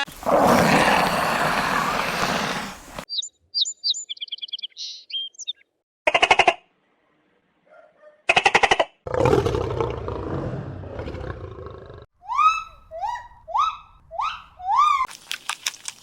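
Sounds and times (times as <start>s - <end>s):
big cat roaring: 0.1s - 3.0s, 9.1s - 12.1s.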